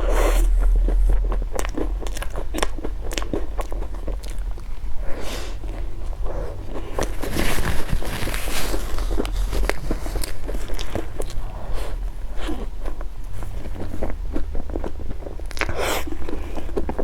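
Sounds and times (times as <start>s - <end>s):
low hum: 0.0s - 12.3s
person chewing crunchy food: 0.1s - 17.0s.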